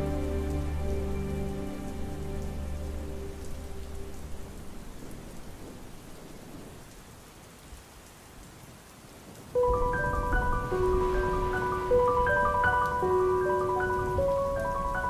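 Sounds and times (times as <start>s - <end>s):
steady rain: 0.0s - 15.0s
distant thunder rumble: 4.1s - 7.0s, 9.6s - 15.0s
held music notes: 9.6s - 15.0s.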